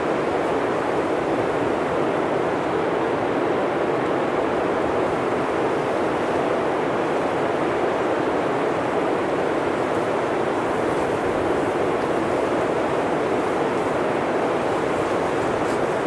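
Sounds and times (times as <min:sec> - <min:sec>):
blizzard wind through forest: 0:00.0 - 0:16.0.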